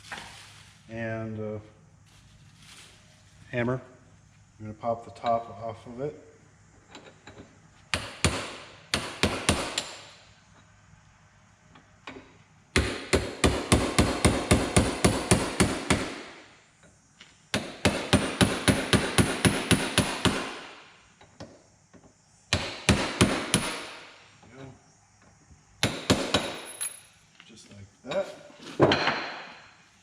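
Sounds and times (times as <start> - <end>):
hammer striking chisel on metal: 7.9 - 10.0, 17.5 - 20.6, 25.8 - 26.8.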